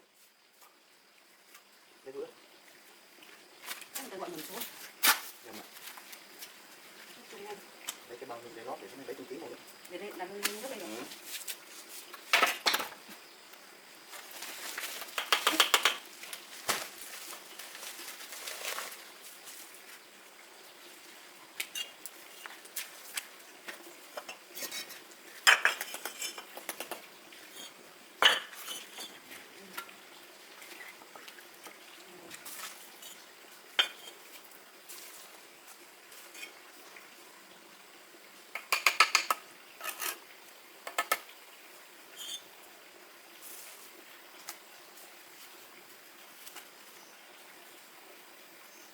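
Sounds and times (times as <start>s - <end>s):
dishes and utensils clattering: 24.2s - 29.2s.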